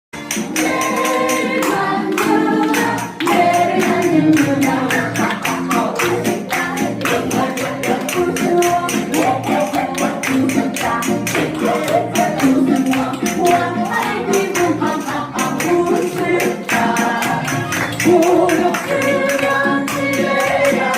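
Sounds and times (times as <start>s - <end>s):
spoons clacking rhythm: 0.2s - 20.9s
person singing: 0.4s - 20.9s.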